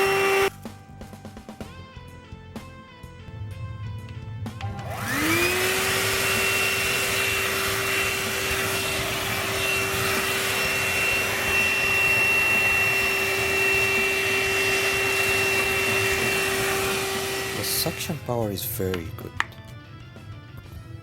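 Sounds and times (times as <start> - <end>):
handheld vacuum running: 0.0 - 0.6, 4.5 - 19.6.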